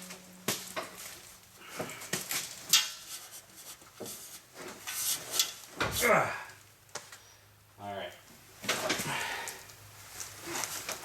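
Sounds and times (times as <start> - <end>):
rustling: 10.0 - 11.0.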